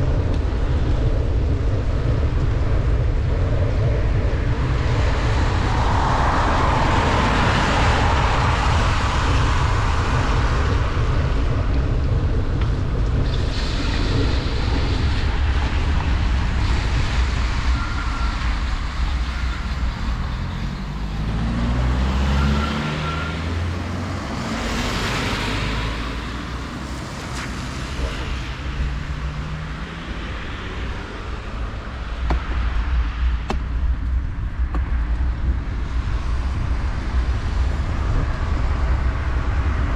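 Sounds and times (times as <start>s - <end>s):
wind buffeting microphone: 0.0s - 39.9s
rain hiss on wet road: 13.0s - 20.3s.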